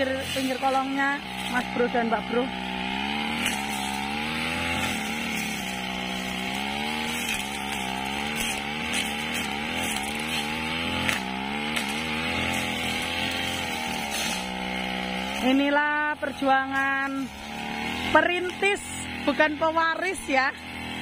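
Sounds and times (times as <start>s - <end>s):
brush cutter engine cutting grass: 0.0s - 21.0s.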